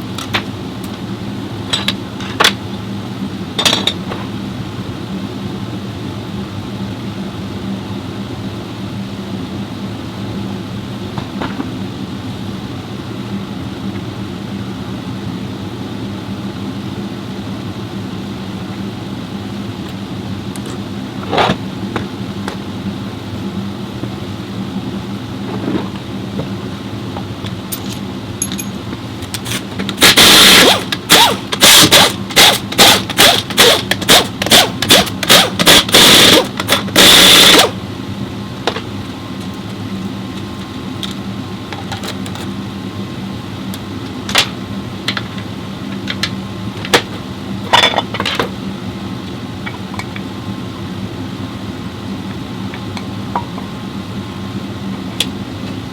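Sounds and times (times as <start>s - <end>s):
steady hum: 0.0s - 55.9s
tools clicking and knocking: 27.7s - 30.0s
pneumatic air tool bursts: 29.4s - 37.8s.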